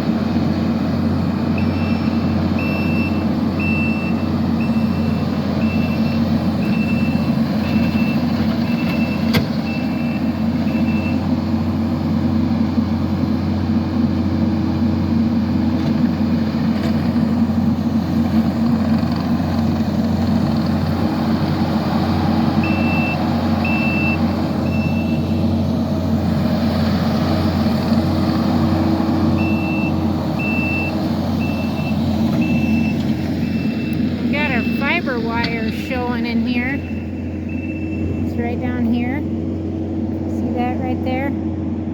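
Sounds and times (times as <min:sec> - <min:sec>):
diesel engine running: 0:00.0 - 0:41.9
reversing alarm beeping: 0:01.5 - 0:11.3, 0:22.6 - 0:25.6, 0:29.3 - 0:38.4.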